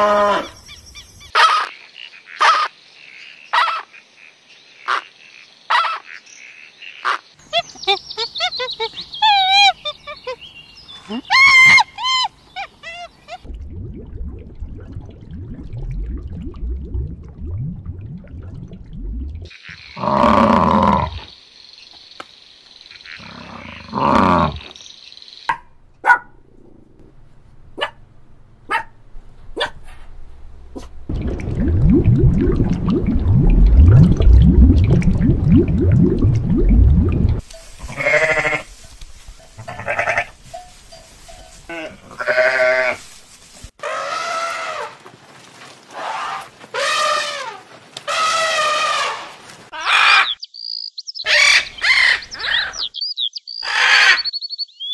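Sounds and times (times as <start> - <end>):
low rumbling: 13.4 - 19.5, 30.3 - 37.4
sheep bleating: 37.9 - 38.7, 39.6 - 40.4, 41.7 - 43.0.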